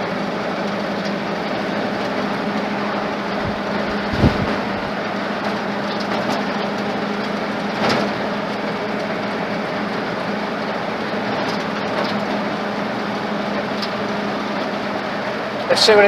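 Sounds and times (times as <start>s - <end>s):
truck engine and road noise: 0.0s - 16.0s
constant low hum: 0.4s - 6.2s.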